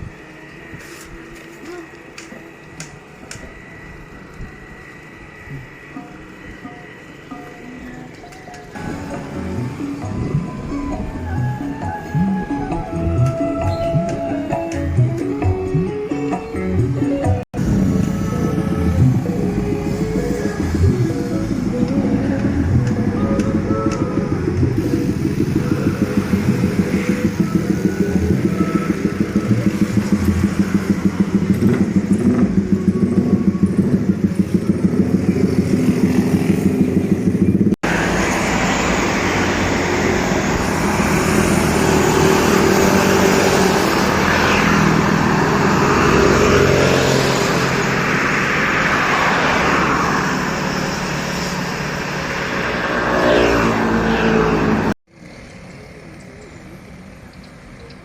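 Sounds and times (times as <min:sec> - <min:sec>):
engine drone: 0:00.0 - 0:58.0
passing road traffic: 0:00.0 - 0:58.0.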